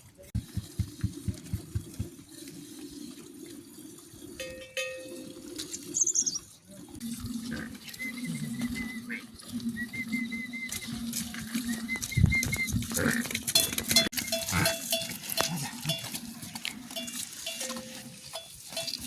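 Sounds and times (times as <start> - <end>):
quick low knocks: 0.4 - 2.2.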